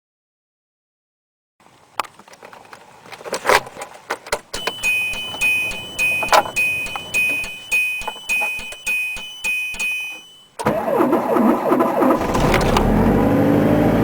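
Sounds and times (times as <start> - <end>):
engine cranking: 2.0 - 14.0
sharp click: 4.3 - 10.7
car warning chime beeping: 4.5 - 12.2
keys jangling in ignition: 4.6 - 10.7.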